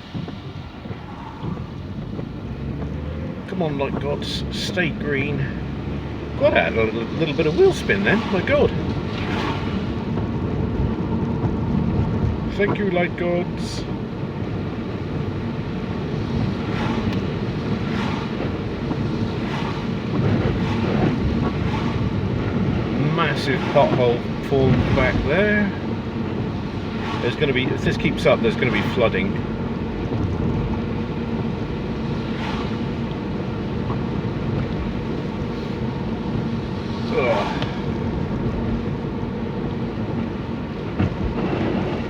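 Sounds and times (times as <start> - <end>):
engine and tyre rumble: 0.0 - 42.0
heavy rain: 0.0 - 42.0
water spray from wheels: 0.0 - 42.0.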